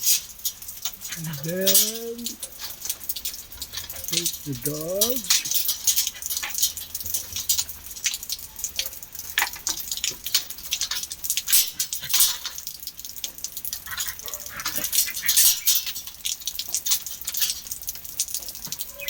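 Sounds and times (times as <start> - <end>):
dog scratching and clicking: 5.0 - 8.2, 9.4 - 12.7, 13.7 - 17.6.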